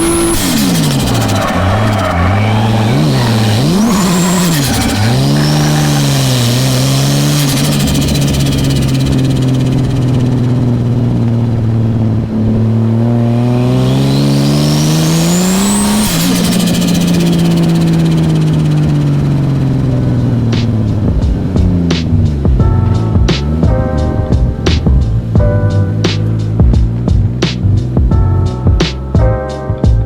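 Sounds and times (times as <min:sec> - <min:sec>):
car engine revving: 0:00.0 - 0:29.2.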